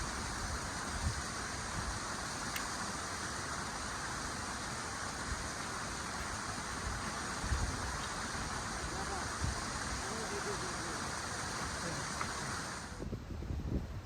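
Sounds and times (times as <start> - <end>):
strong wind buffeting microphone: 0.0 - 2.4, 5.2 - 14.0.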